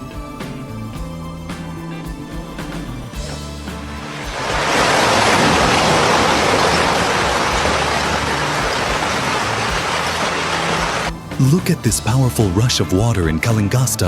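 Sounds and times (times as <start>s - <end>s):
rushing floodwater: 3.6s - 11.2s.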